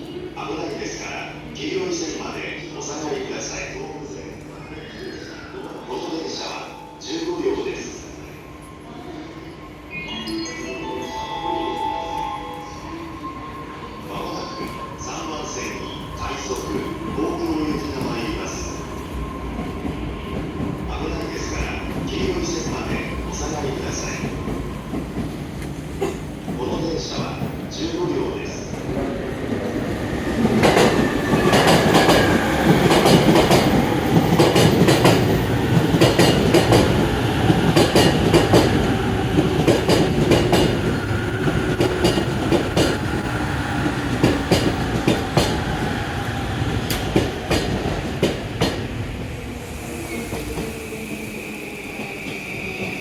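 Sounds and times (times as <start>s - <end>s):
train wheels clacking over rail joints: 46.9s - 48.8s.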